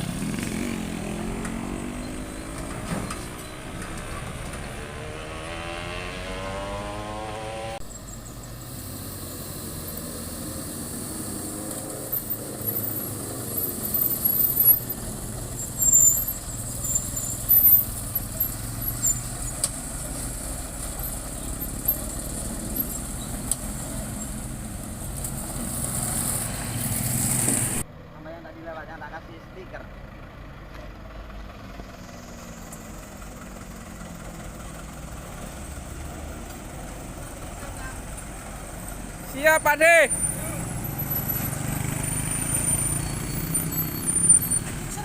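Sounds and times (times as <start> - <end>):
engine revving up: 0.0 - 7.8, 37.7 - 45.0
loud squeaks and knocks: 1.4 - 4.9.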